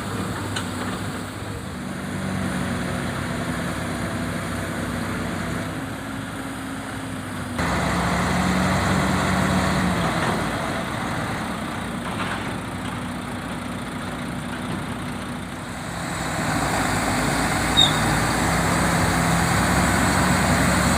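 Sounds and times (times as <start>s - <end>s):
heavy diesel engine running: 0.0s - 20.9s
brief high squeak: 17.7s - 18.2s.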